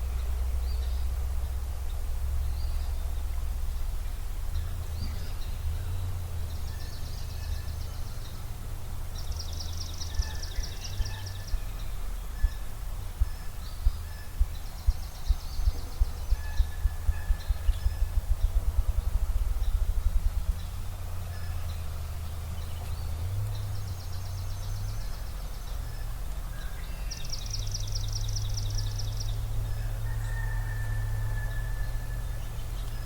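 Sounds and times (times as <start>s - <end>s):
songbirds trilling: 0.0s - 33.0s
bird chirps: 4.0s - 33.0s
grouse drumming thumps: 11.5s - 21.2s.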